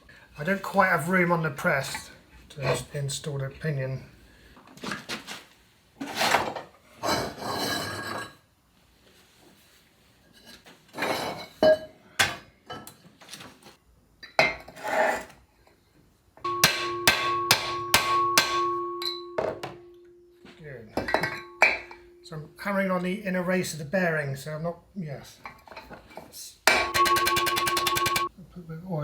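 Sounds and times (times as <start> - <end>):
hammer striking metal: 16.5 - 20.2, 21.0 - 22.2, 26.7 - 28.3.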